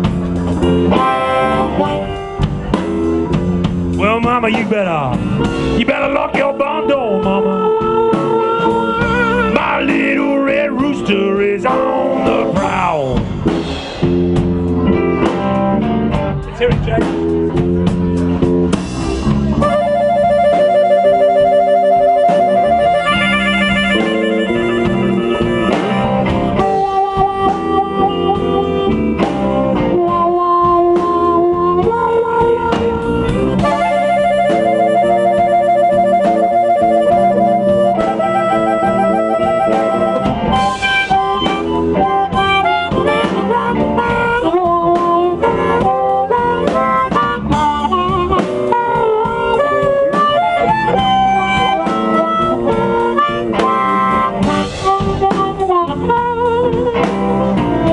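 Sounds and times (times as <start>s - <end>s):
blues band playing instrumental: 0.0s - 57.9s.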